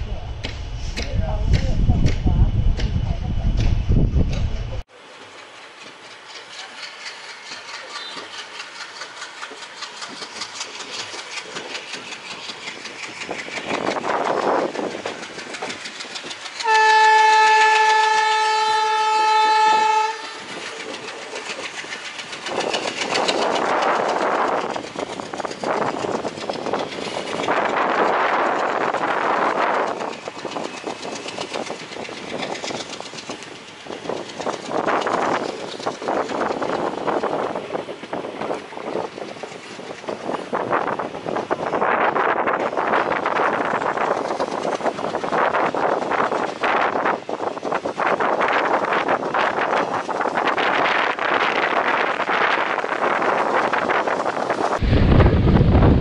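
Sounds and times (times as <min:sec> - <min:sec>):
train wheels clattering: 0:03.6 - 0:54.8
locomotive horn blast: 0:16.6 - 0:20.4
rushes of noise: 0:52.9 - 0:56.0.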